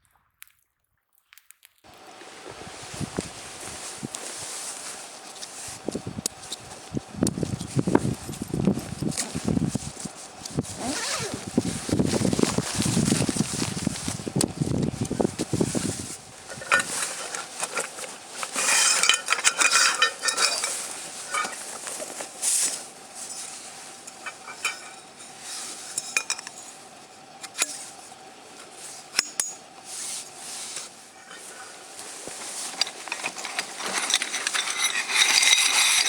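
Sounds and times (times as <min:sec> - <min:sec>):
rustling: 0:01.9 - 0:36.0
tableware clinking and clattering: 0:16.5 - 0:22.2, 0:23.2 - 0:26.8, 0:32.6 - 0:36.0.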